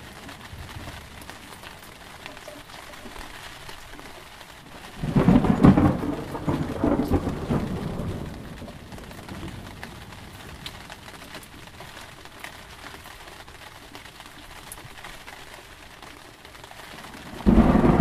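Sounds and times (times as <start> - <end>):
steady rain: 0.0 - 18.0
thunderclap rumbling: 4.8 - 11.8, 17.2 - 18.0.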